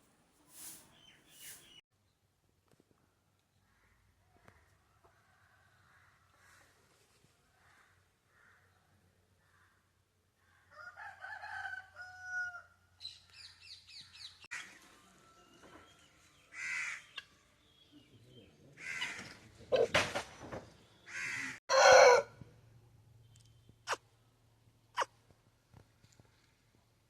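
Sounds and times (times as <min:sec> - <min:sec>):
rooster crowing: 0:10.7 - 0:12.7, 0:21.7 - 0:22.3.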